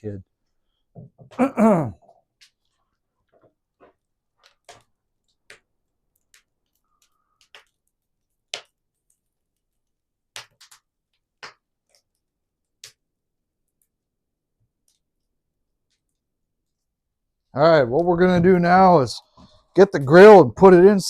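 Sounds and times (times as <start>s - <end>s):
faint sharp clicks and pops: 2.3s - 14.0s.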